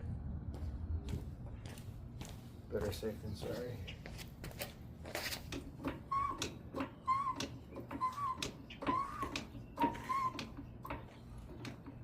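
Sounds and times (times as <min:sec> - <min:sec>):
vehicle jack clicking and squeaking: 0:05.1 - 0:12.0.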